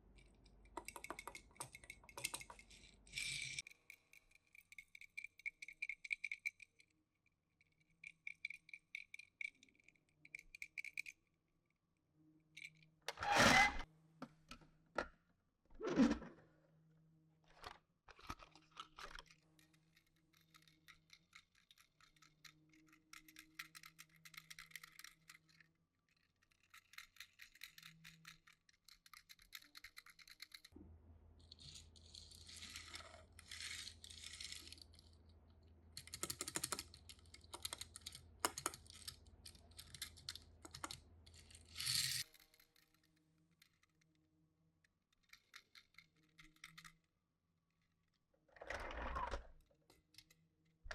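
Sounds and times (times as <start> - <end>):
toy cars clicking and rattling: 0.2 - 6.9, 7.6 - 11.2, 17.5 - 30.8, 31.4 - 35.2, 36.0 - 44.1, 45.1 - 47.1, 48.7 - 50.4.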